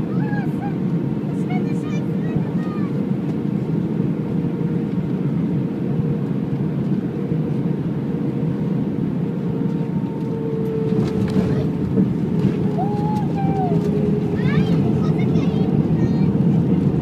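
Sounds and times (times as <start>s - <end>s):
airplane engines rumbling: 0.0s - 17.0s
steady cabin hum: 0.0s - 17.0s.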